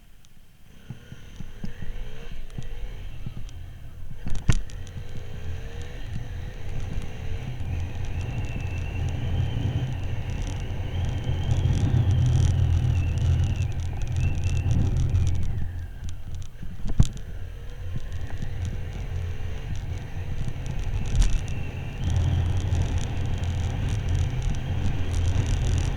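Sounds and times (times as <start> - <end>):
motorcycle engine and wind rumble: 0.0 - 25.9.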